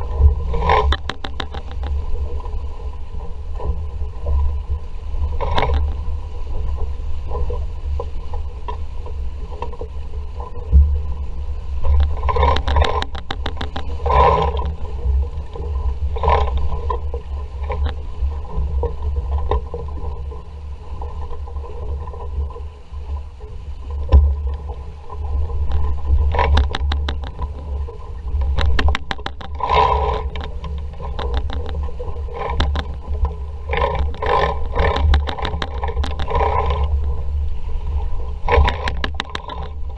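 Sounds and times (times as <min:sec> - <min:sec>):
boat rattling: 0:00.0 - 0:39.9.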